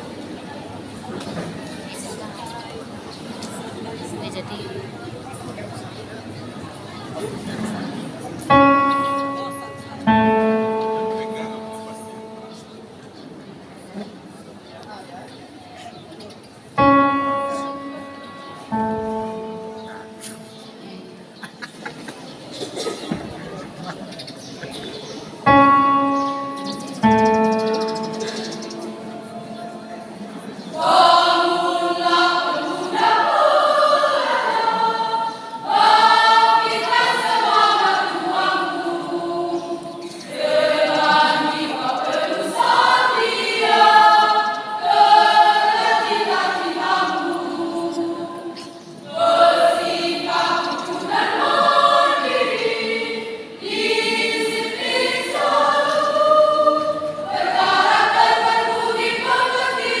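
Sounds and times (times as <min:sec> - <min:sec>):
choir singing in parts: 0:08.5 - 0:12.9, 0:16.8 - 0:21.4, 0:25.4 - 1:00.0.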